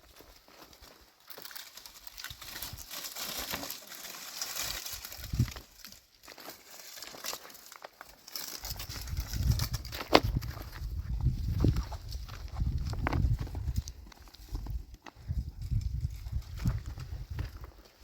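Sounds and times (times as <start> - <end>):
plastic sheeting crinkling: 1.2 - 9.7.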